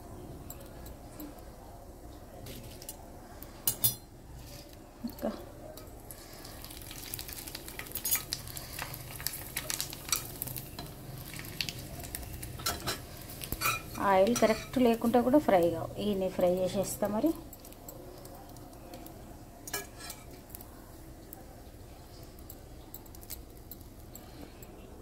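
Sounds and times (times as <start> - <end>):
fritters sizzling in hot oil: 0.1 - 24.4
metal spoon scraping pan: 12.6 - 15.0, 19.7 - 20.4.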